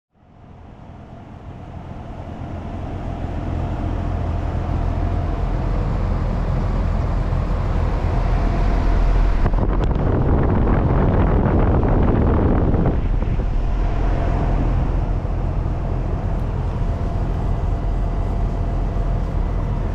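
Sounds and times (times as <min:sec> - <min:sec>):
heat pump humming: 0:00.2 - 0:19.9
air whooshing: 0:08.3 - 0:17.4.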